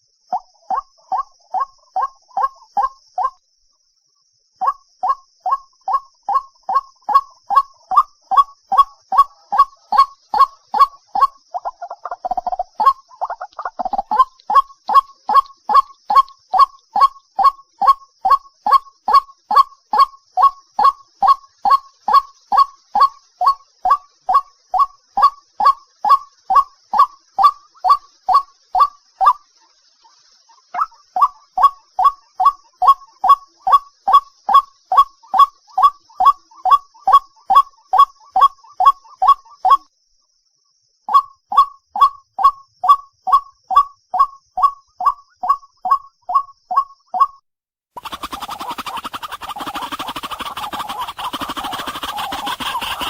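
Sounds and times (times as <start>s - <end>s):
bird calling short rising notes: 48.0s - 53.0s.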